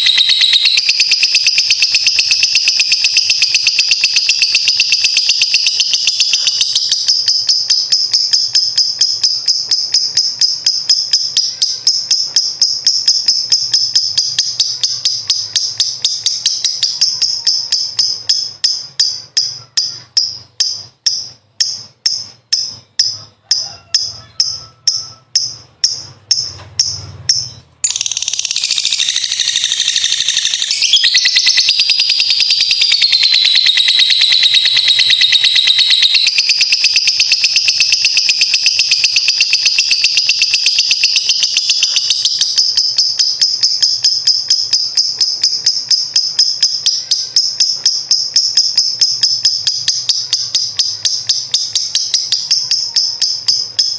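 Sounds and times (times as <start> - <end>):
lovebird shrill chattering song: 0.0 - 53.9.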